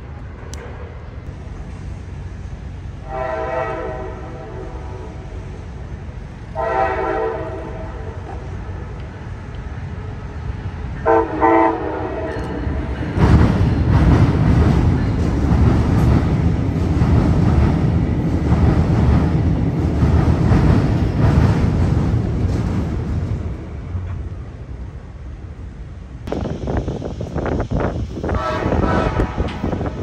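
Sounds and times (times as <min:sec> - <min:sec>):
train rumbling across steel bridge: 0:00.0 - 0:30.0
train horn blasts: 0:03.0 - 0:05.4, 0:06.5 - 0:08.4, 0:11.0 - 0:12.5, 0:28.2 - 0:30.0
rail clatter: 0:12.2 - 0:24.5, 0:26.3 - 0:30.0.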